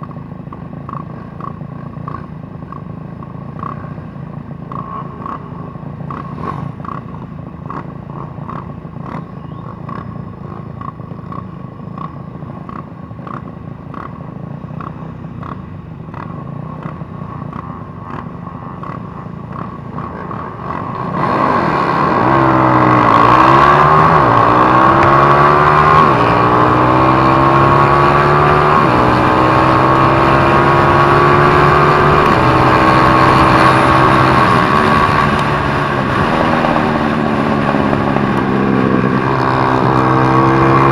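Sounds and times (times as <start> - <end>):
motorcycle engine revving: 0.0 - 40.9
faint regular ticking: 9.9 - 20.9.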